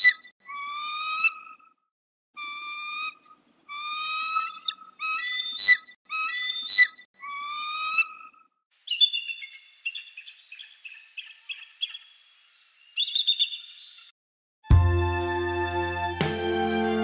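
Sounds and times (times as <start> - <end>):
songbirds calling: 2.4 - 14.1
music: 14.7 - 17.0.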